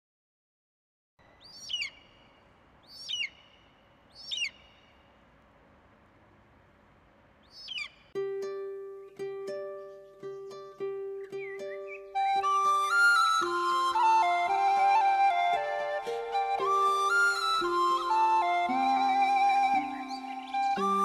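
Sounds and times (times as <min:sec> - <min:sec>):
faint outdoor hiss: 0:01.2 - 0:21.0
music with plucked notes: 0:08.2 - 0:21.0.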